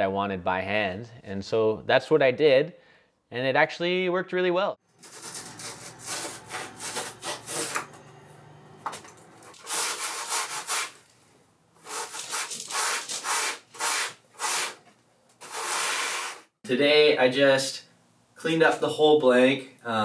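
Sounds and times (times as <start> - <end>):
sandpaper rubbing on foam: 5.0 - 7.9, 9.4 - 11.0, 11.8 - 14.8, 15.4 - 16.5.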